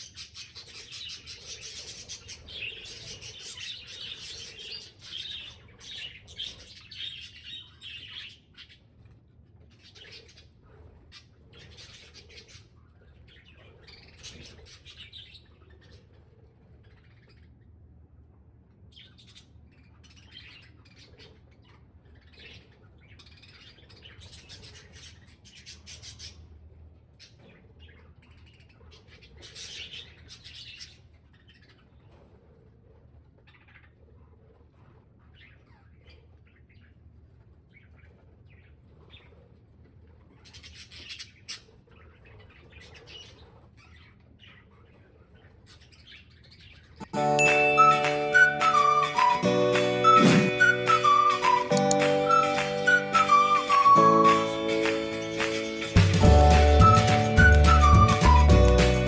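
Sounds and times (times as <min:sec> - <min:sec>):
budgerigars chattering and chirping: 0:00.0 - 0:08.8.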